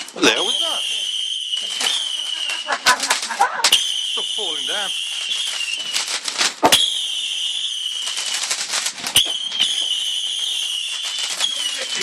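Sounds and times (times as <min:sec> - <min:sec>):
fireworks crackling: 0:00.0 - 0:12.0
sharp firework bangs: 0:00.0 - 0:12.0
high-pitched whistle: 0:03.7 - 0:08.3, 0:09.1 - 0:12.0.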